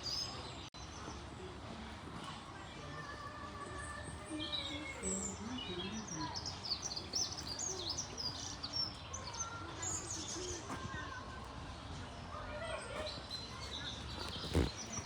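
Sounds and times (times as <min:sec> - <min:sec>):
birds chirping and twittering: 0:03.7 - 0:10.8, 0:12.2 - 0:15.0.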